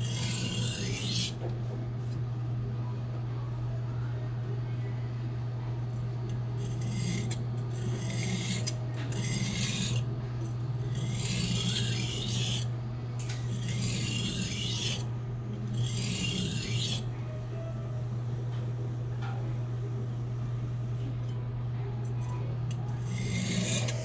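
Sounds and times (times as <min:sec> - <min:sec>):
knife scraping on whetstone: 0:00.0 - 0:01.4, 0:06.6 - 0:10.0, 0:10.8 - 0:12.7, 0:13.3 - 0:15.1, 0:15.7 - 0:17.1, 0:23.0 - 0:24.0
low hum: 0:11.8 - 0:24.0.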